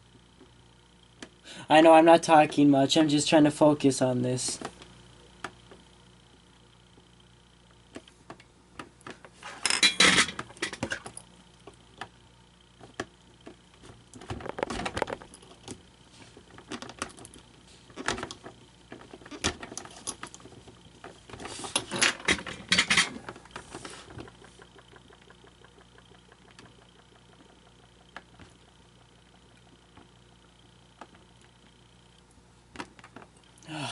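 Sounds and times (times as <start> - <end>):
faint steady hum: 0.0 - 33.9
plastic parts rattling and clicking: 14.1 - 15.8, 16.4 - 28.5.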